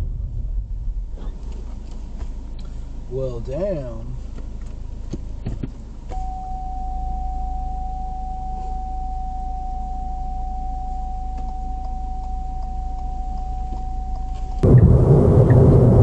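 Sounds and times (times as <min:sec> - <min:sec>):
vehicle and road rumble: 0:00.0 - 0:16.0
steady electronic beep: 0:06.2 - 0:14.4.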